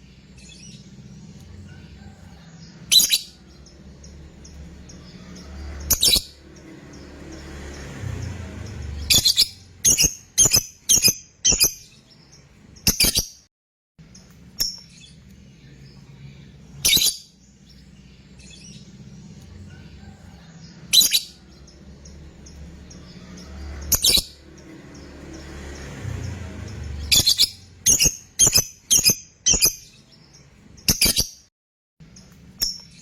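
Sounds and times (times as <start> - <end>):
lovebird chirping shrilly: 2.9 - 3.4, 5.9 - 6.4, 9.0 - 12.0, 16.8 - 17.3, 20.9 - 21.4, 27.0 - 30.0.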